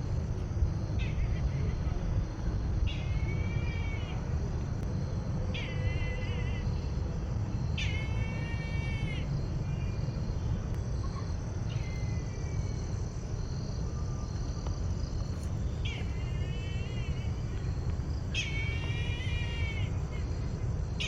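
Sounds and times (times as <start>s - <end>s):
steady low rumble: 0.0s - 21.0s
bird calling: 18.3s - 21.0s.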